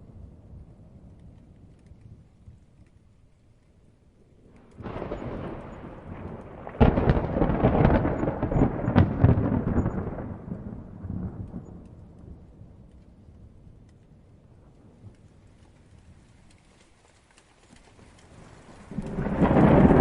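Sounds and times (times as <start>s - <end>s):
rolling thunder: 0.0s - 2.5s, 4.2s - 15.5s, 18.3s - 20.0s
light rain: 0.0s - 20.0s
sharp thunder crack: 4.7s - 12.4s, 18.9s - 20.0s.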